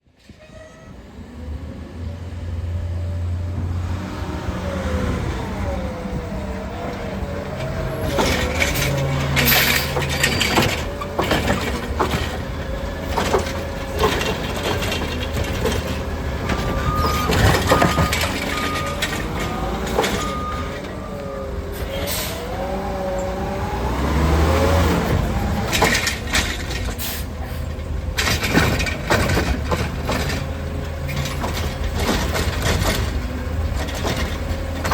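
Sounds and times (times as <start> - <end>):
garbage truck engine: 0.9 - 34.9
metal clanks: 7.6 - 21.0, 25.6 - 34.9.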